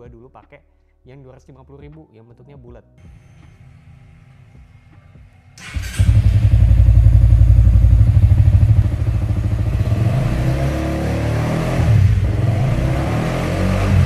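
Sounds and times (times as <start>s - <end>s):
motorcycle engine revving: 5.6s - 14.0s.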